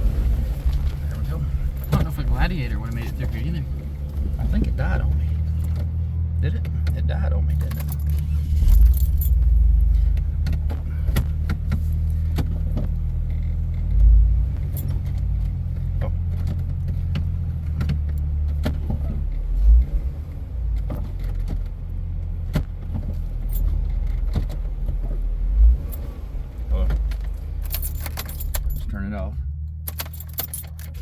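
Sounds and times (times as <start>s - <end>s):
vehicle engine idling: 0.0s - 31.0s
sharp clicks and rattles: 0.7s - 19.0s, 26.7s - 31.0s.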